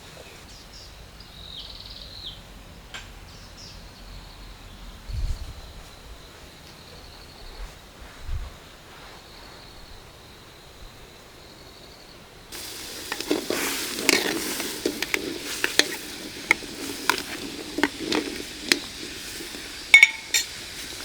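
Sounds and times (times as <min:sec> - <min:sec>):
food sizzling in a pan: 0:12.5 - 0:21.0
utensil scraping and knocking pan: 0:12.5 - 0:21.0.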